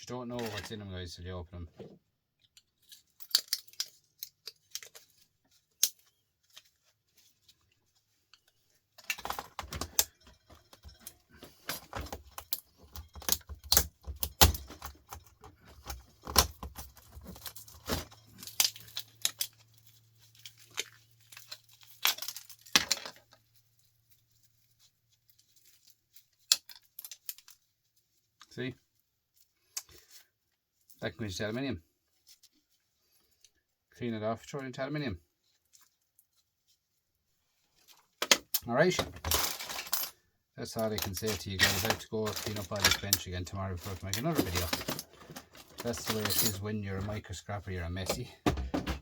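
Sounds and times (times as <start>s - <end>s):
small metal and plastic parts clinking: 2.4s - 6.7s, 8.3s - 23.6s, 37.9s - 40.2s, 40.8s - 47.2s.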